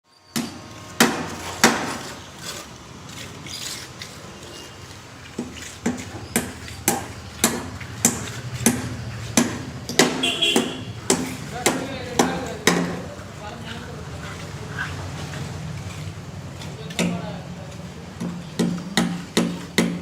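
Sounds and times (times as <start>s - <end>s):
hammer blows on timber: 0.3s - 2.1s, 5.4s - 13.1s.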